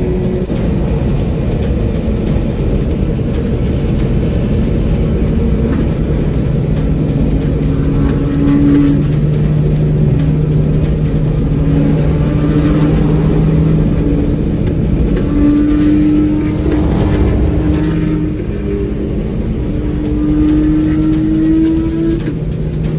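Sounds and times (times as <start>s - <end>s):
car engine droning: 0.0s - 22.9s.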